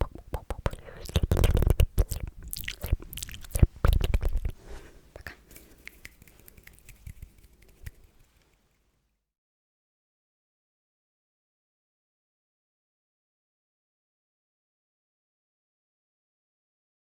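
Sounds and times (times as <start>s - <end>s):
wet mouth clicks and smacks: 0.0s - 4.6s, 5.2s - 8.7s.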